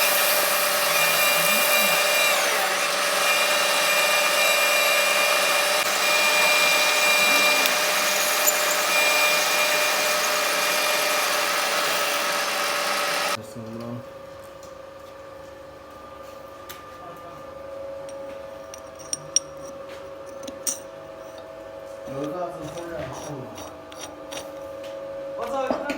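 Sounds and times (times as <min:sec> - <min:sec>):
metal lathe drilling: 0:00.0 - 0:13.4.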